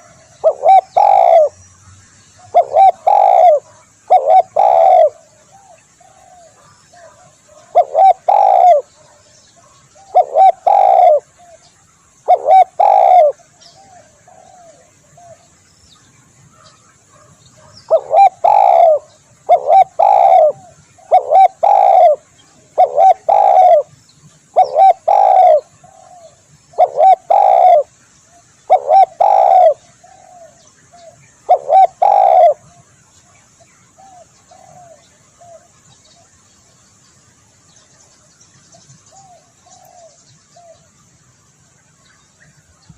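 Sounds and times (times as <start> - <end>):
dove cooing: 0.0 - 1.6, 2.4 - 15.4, 16.5 - 23.9, 24.5 - 28.0, 28.7 - 32.9, 34.0 - 35.7, 39.1 - 40.9.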